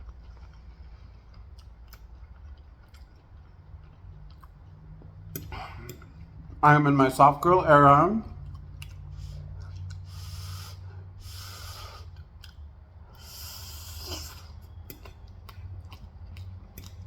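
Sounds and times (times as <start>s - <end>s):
wet chewing mouth clicks: 0.0s - 6.5s, 11.3s - 17.0s
steady low hum: 0.0s - 17.0s
breathing through the nose: 9.1s - 12.3s, 13.1s - 14.7s.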